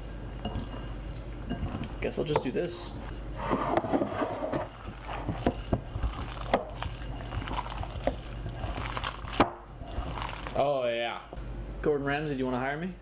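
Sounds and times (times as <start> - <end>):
wet sticky mixing in bowl: 4.7 - 11.2.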